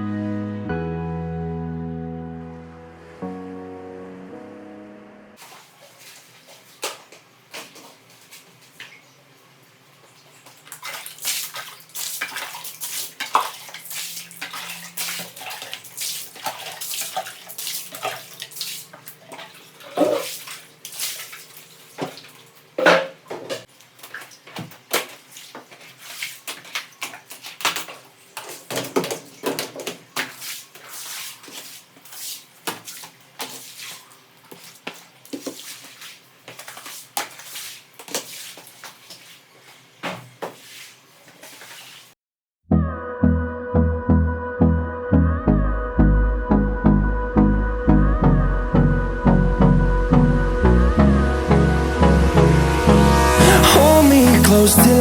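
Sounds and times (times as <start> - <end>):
water splashing and sloshing: 5.4 - 42.2
scrubbing: 10.2 - 22.5, 24.0 - 42.2.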